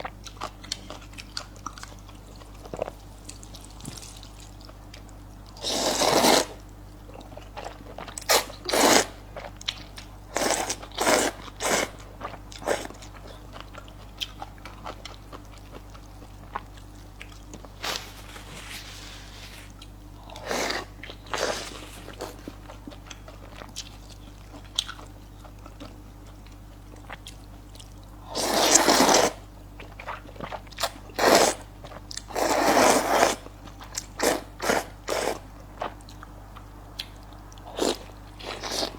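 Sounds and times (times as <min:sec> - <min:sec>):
crunchy bites and chewing: 0:00.0 - 0:18.6.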